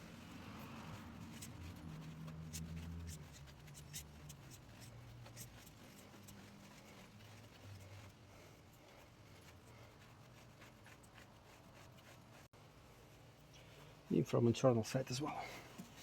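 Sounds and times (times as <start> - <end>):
rag rubbing motorcycle chain: 0.0 - 12.5.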